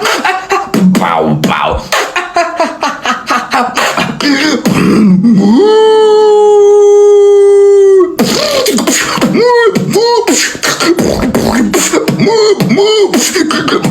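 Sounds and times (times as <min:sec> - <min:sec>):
beatbox kick and snare: 0:00.0 - 0:02.5, 0:03.6 - 0:05.0, 0:08.2 - 0:13.9.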